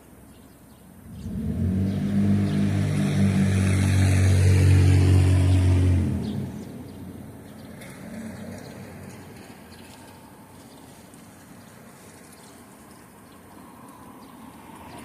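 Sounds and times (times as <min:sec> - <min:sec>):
vehicle driving past: 0:01.0 - 0:10.6.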